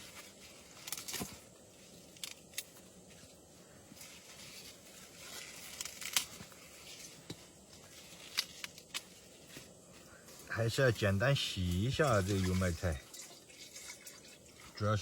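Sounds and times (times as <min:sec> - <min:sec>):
lettuce tearing and crinkling: 0:00.0 - 0:02.8, 0:04.0 - 0:07.3, 0:07.9 - 0:09.6
lettuce snapping: 0:05.6 - 0:06.4.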